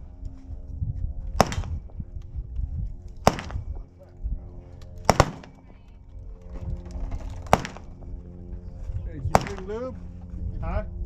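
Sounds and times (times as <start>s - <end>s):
gunshots with echo: 1.4s - 1.8s, 3.2s - 3.8s, 5.0s - 5.6s, 7.5s - 7.9s, 9.3s - 9.8s.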